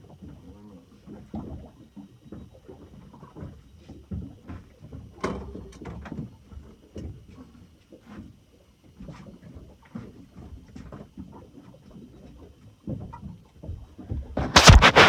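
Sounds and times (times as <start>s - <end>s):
knocks and clunks on a boat: 0.0s - 14.6s
sharp click: 14.4s - 15.0s.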